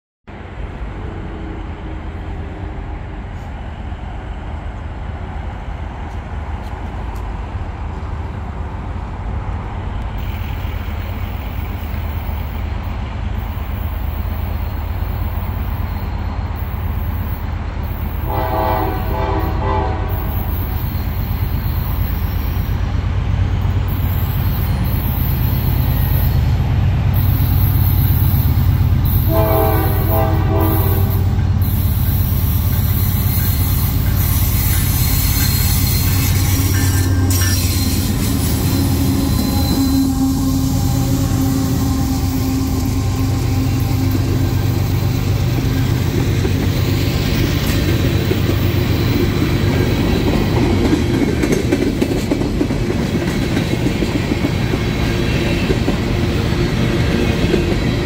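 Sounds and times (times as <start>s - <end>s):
diesel locomotive engine rumble: 0.3s - 58.0s
locomotive air horn: 18.2s - 20.3s, 29.2s - 31.4s, 35.1s - 45.2s.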